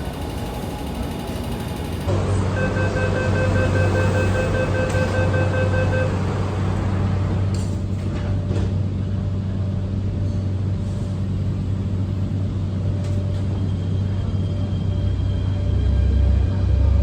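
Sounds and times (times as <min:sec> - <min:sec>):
underground train rumbling: 0:00.0 - 0:17.0.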